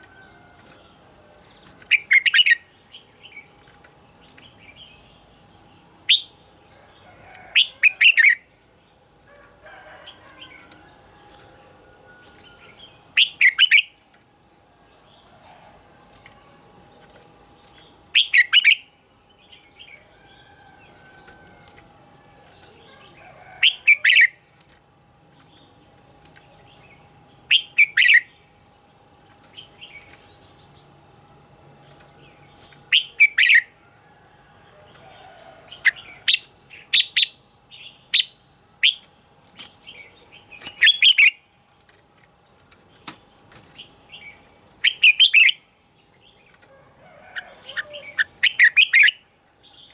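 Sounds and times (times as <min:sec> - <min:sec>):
faint steady hum: 0:00.0 - 0:49.9
bird singing warbled phrases: 0:01.4 - 0:06.6, 0:07.5 - 0:08.5, 0:12.5 - 0:14.0, 0:17.8 - 0:21.0, 0:22.4 - 0:24.4, 0:25.4 - 0:31.0, 0:31.9 - 0:33.8, 0:35.1 - 0:41.6, 0:43.8 - 0:49.9.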